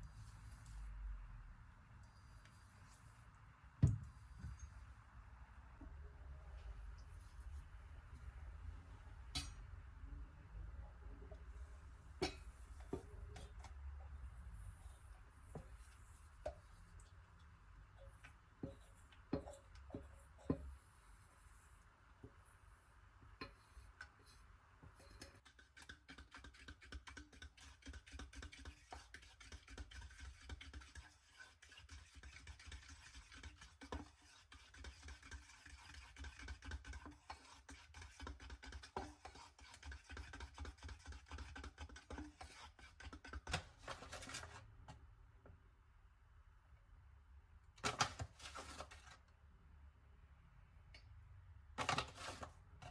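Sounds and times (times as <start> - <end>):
utensil scraping batter: 23.4 - 44.8, 47.8 - 49.2, 51.8 - 52.9.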